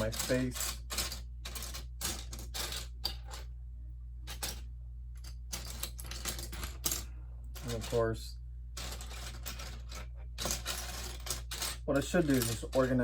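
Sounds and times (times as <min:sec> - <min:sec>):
plastic pieces clicking and rattling: 0:00.0 - 0:03.2, 0:05.2 - 0:07.0
steady low hum: 0:00.0 - 0:13.0.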